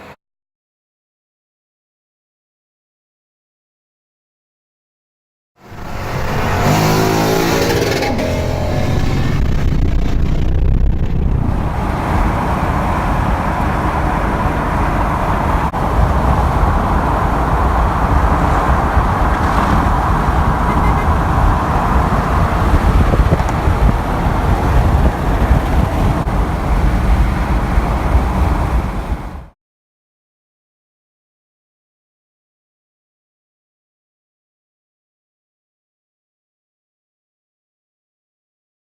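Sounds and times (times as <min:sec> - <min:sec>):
car engine accelerating hard: 0:05.6 - 0:29.5
road noise: 0:05.6 - 0:29.6.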